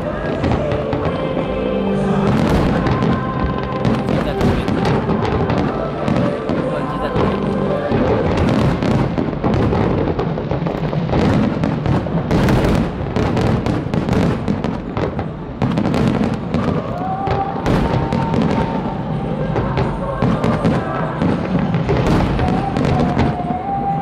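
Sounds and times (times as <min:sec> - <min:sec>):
music playing: 0:00.0 - 0:11.3
fireworks cracks and booms: 0:00.0 - 0:24.0.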